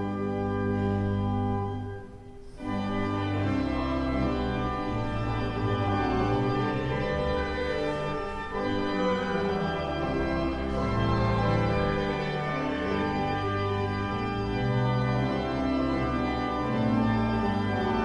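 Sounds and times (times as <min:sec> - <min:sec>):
organ playing held chords: 0:00.0 - 0:18.0.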